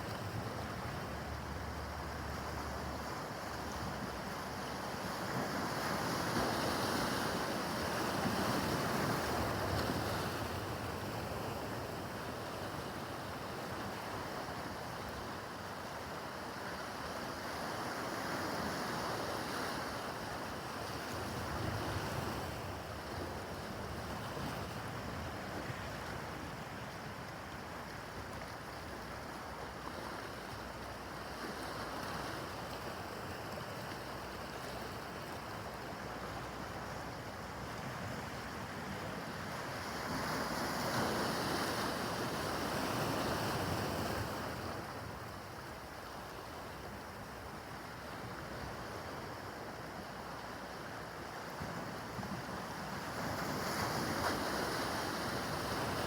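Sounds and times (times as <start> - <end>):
waves washing and breaking: 52.0 - 56.0.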